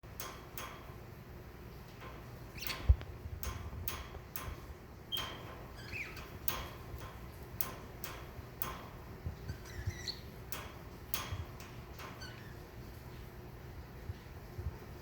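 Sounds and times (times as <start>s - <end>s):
budgerigar chirping: 9.5s - 10.3s.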